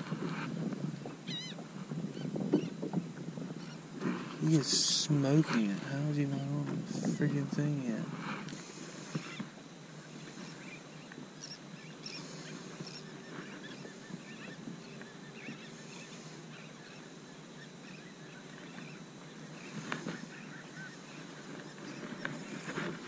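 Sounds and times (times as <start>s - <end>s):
flock of birds calling: 1.0s - 2.8s, 8.5s - 23.0s.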